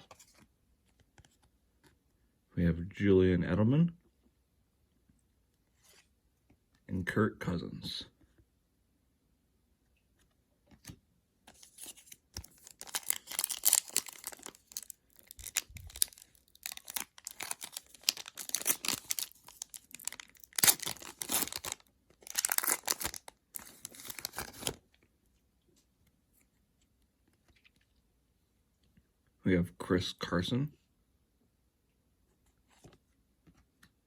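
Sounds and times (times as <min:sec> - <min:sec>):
foil wrapper tearing and crinkling: 0:11.6 - 0:24.8.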